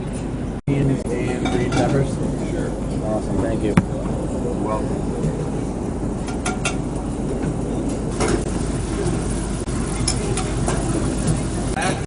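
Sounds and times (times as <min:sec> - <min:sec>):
murmur of voices: 0:00.7 - 0:12.0
kitchen noise: 0:08.1 - 0:12.0.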